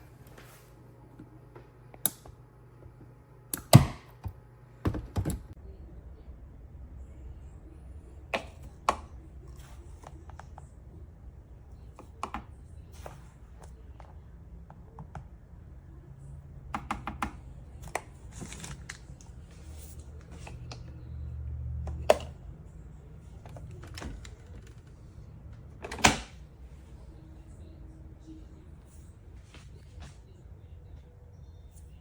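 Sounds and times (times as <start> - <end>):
clicks and taps: 16.7 - 18.1.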